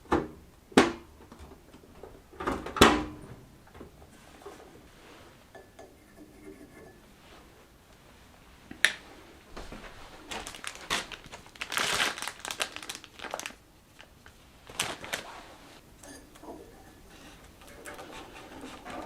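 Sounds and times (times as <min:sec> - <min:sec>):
crinkling rustling handling noise: 0:09.4 - 0:19.0.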